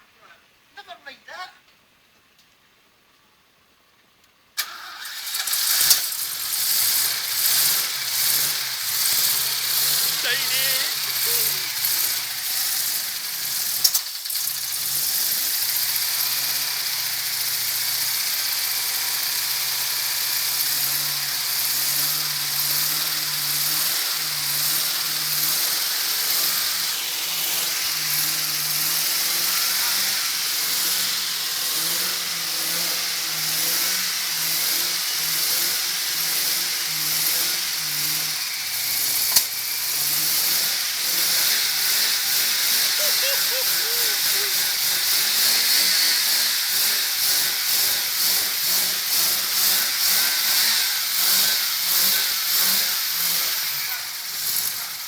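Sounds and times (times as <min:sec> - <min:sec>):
engine idling unevenly: 0:06.2 - 0:50.1.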